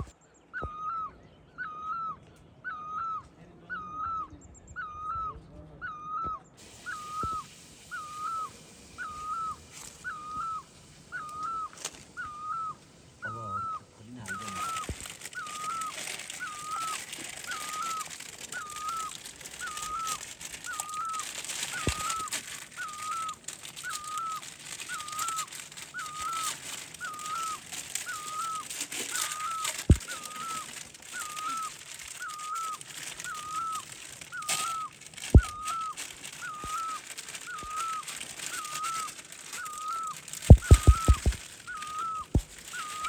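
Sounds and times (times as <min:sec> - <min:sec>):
bird whistling short hooked call: 0:00.0 - 0:03.2, 0:05.9 - 0:43.0
constant hiss: 0:06.4 - 0:43.0.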